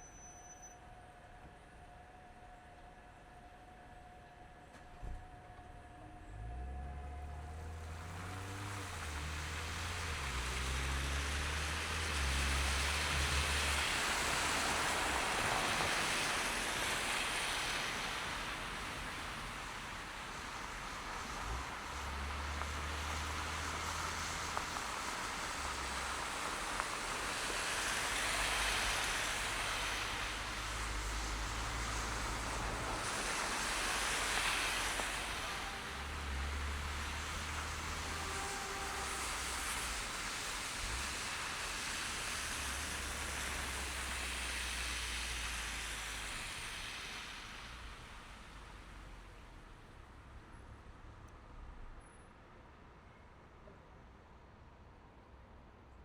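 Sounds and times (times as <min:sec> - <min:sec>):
low engine hum: 0:04.9 - 0:52.1
tyres hissing on slushy pavement: 0:06.3 - 0:50.6.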